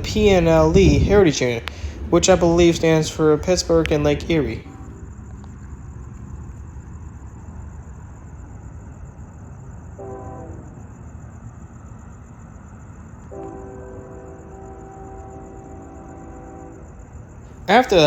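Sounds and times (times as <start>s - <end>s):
low rumble: 0.0s - 5.1s
distant locomotive air horn: 10.0s - 10.8s, 13.3s - 17.2s.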